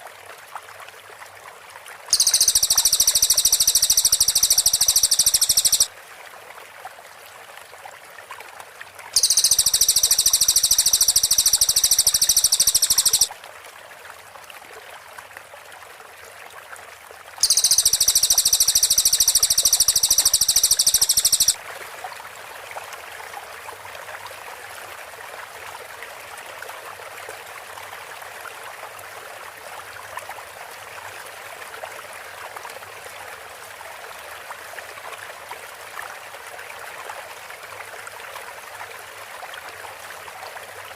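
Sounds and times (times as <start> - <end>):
running water: 0.8 - 15.2, 17.4 - 24.1
bird song rapid high notes: 2.1 - 5.9, 9.2 - 13.3, 17.4 - 21.6.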